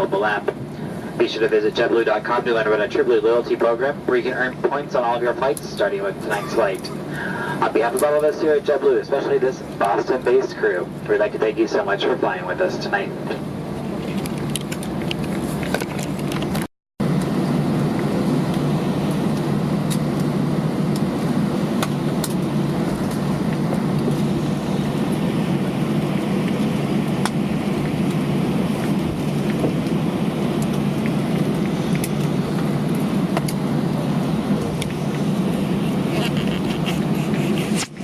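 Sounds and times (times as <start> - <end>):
aircraft engines humming: 0.0 - 38.0.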